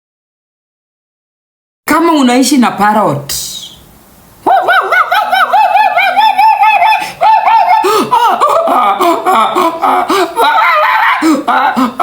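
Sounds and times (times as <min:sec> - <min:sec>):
high-pitched rapid laughter: 0:04.4 - 0:12.0
lower laughter: 0:04.4 - 0:12.0.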